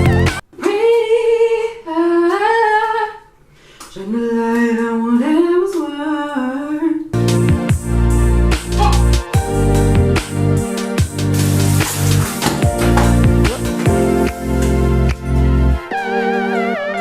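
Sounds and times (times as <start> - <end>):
woman humming: 12.8 - 14.3.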